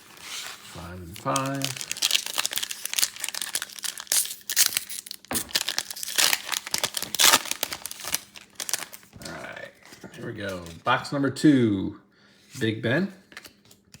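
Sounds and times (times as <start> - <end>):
plastic wrapping crinkling and tearing: 0.0 - 10.8.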